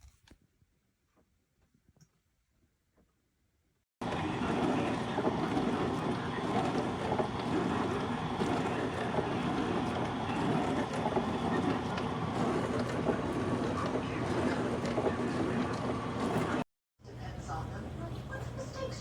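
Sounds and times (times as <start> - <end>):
dishwasher water spraying: 4.0 - 16.6
pump motor hum: 4.0 - 16.7.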